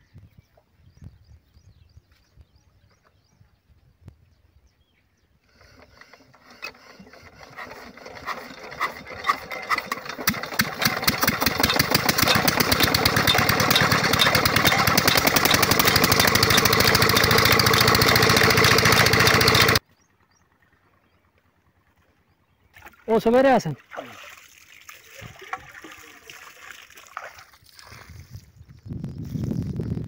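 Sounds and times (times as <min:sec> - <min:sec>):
diesel engine starting and running: 0:05.5 - 0:22.3.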